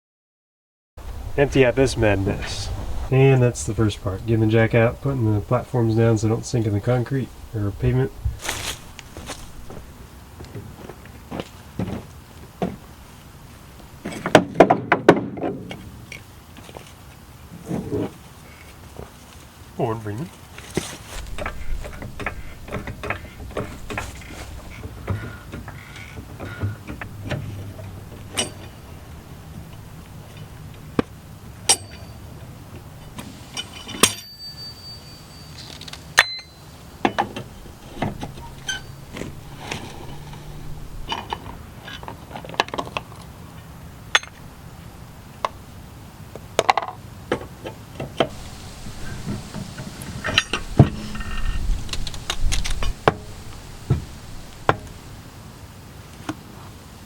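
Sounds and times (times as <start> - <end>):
metallic clicks and clanks of tools: 26.9 - 28.8, 31.6 - 32.2.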